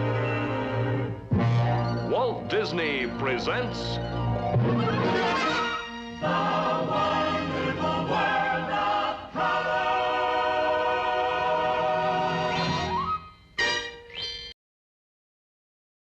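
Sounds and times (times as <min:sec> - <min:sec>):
chorus singing: 0:00.0 - 0:01.2, 0:04.6 - 0:12.9
orchestra playing: 0:01.3 - 0:06.4.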